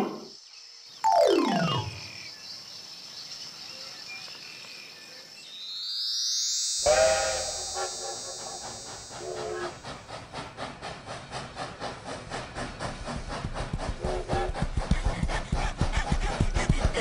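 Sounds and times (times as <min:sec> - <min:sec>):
toy train whistle toots: 0:06.8 - 0:09.9
toy locomotive electronic chugging: 0:06.8 - 0:17.0.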